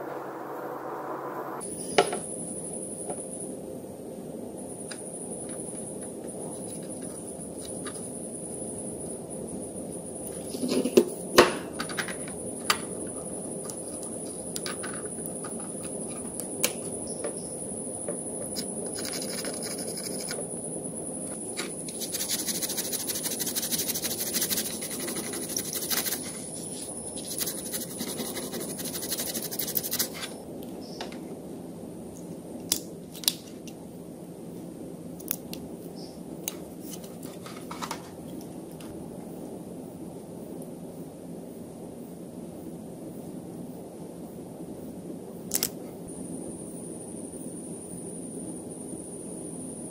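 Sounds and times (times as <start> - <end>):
steady background hum: 0.0 - 49.9
rapid scratchy snipping: 18.5 - 20.4, 21.6 - 30.3.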